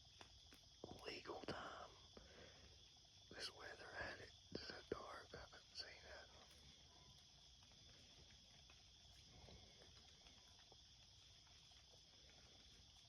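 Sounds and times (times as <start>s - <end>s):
high insect chorus: 0.0s - 13.0s
soft ticks and rustles: 0.0s - 13.0s.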